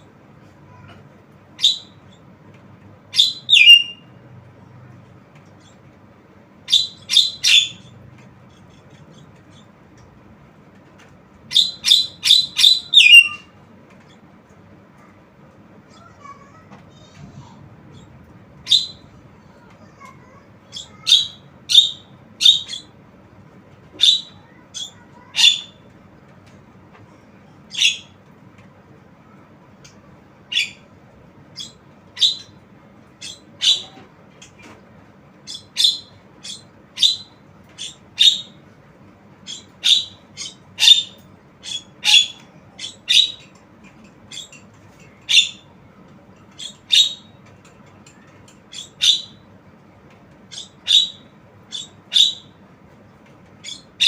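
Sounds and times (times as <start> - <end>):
myna bird calling: 1.6 - 2.3, 3.1 - 4.2, 6.6 - 10.0, 11.5 - 14.2, 17.4 - 23.0, 23.9 - 25.8, 27.1 - 28.2, 29.8 - 30.9, 31.6 - 34.8, 35.4 - 38.7, 39.4 - 45.8, 46.4 - 47.4, 48.0 - 49.5, 50.5 - 52.6, 53.6 - 54.0.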